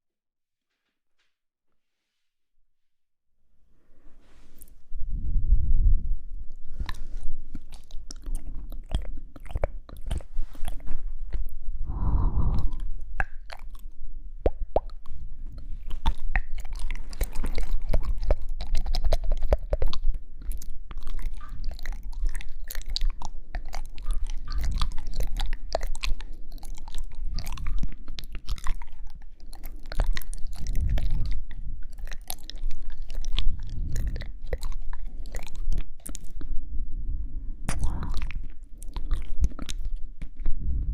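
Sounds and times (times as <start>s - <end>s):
wet mouth clicks and smacks: 6.5s - 36.6s, 37.7s - 40.9s.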